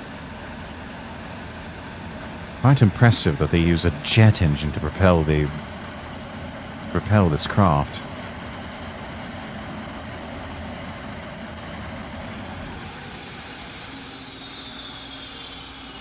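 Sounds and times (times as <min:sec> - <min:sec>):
turbine engines whining: 0:00.0 - 0:16.0.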